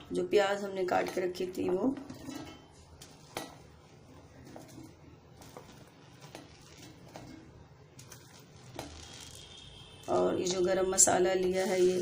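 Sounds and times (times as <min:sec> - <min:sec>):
utensils tapping and clicking: 0:04.4 - 0:09.5.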